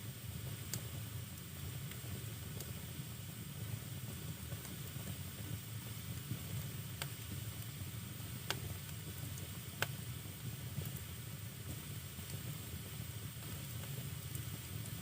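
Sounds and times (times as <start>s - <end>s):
flames rushing and hissing: 0.3s - 15.0s
firewood crackling pops: 8.4s - 8.7s.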